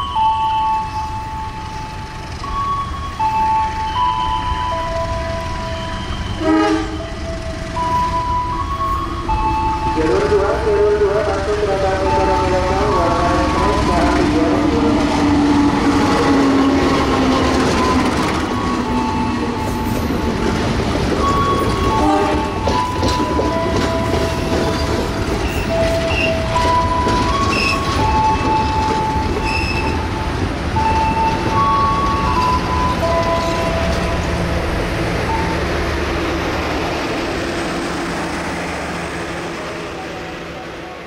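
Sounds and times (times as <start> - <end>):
diesel locomotive engine: 0.0 - 41.0
train wheel clatter: 10.2 - 39.1
wheels squealing: 15.2 - 34.3.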